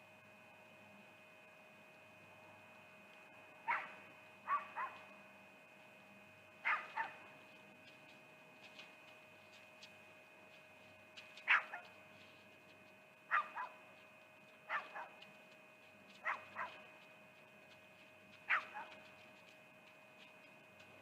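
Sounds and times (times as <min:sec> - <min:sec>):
animal barking in yelps: 0:03.6 - 0:05.0, 0:06.6 - 0:07.3, 0:11.5 - 0:11.9, 0:13.3 - 0:13.8, 0:14.7 - 0:15.2, 0:16.2 - 0:16.8, 0:18.5 - 0:19.0.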